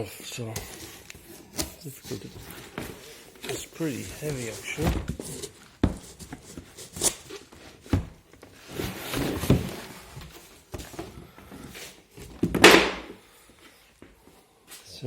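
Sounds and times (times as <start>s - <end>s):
cardboard packaging rustling: 0.4s - 12.4s.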